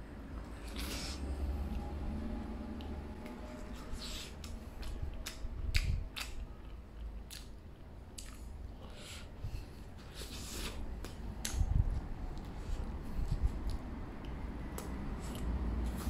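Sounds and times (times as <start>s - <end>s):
person chewing with wet mouth clicks: 2.8s - 9.0s, 10.6s - 12.5s, 13.6s - 16.0s.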